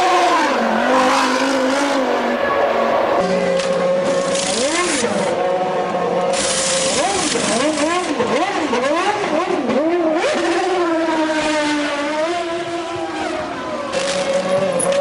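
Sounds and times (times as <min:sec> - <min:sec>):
racing car engine revving: 0:00.0 - 0:15.0.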